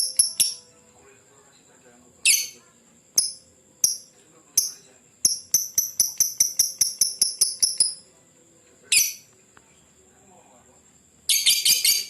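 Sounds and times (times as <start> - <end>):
lovebird chirping: 0.0 - 0.8, 2.2 - 2.6, 3.2 - 8.0, 8.9 - 9.3, 11.3 - 12.0.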